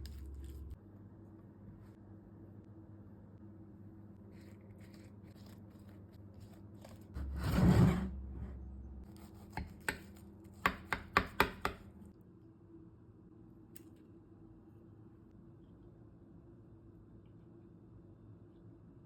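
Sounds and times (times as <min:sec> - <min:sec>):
knife chopping on cutting board: 0:09.1 - 0:11.8.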